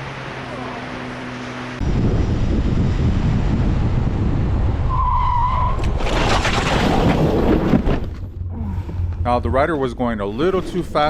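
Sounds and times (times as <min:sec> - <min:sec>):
motorcycle running at speed: 0:00.0 - 0:04.9
wind rumble on microphone: 0:01.8 - 0:05.0.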